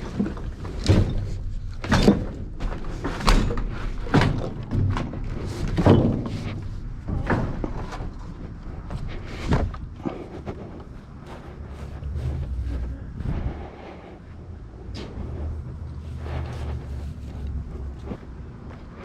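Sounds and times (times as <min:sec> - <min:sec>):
objects knocking and thudding: 0:00.0 - 0:13.6
low rumble: 0:00.0 - 0:19.0.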